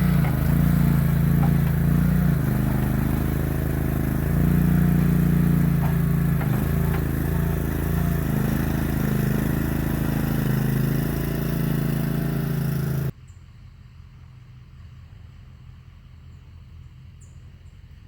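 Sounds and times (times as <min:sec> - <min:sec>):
light clatter: 0:00.0 - 0:13.1
skid steer engine running: 0:00.0 - 0:13.2.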